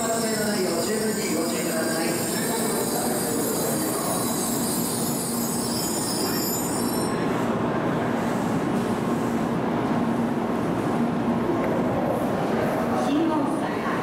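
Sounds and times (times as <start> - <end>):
train braking: 0.0 - 7.6
low hum of standing train: 0.0 - 14.0
wheel and brake squeal: 0.1 - 7.2.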